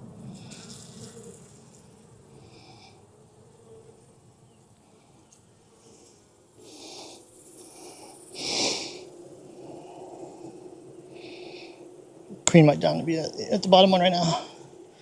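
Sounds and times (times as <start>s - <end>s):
honeybees humming: 0.0s - 15.0s
hissing puffs of air: 7.8s - 9.1s.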